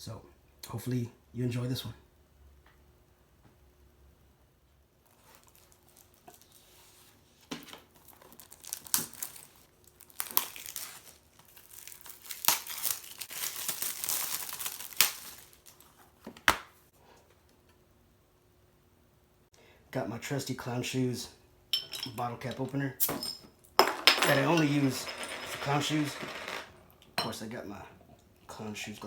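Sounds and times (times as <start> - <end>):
wrapping crinkling and tearing: 5.0 - 7.2, 8.0 - 16.2.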